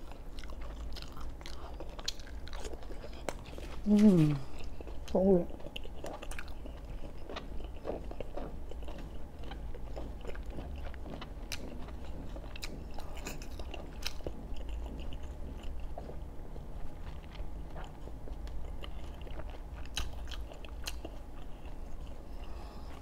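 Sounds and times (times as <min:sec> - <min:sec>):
person chewing with mouth clicks: 0:00.0 - 0:23.0.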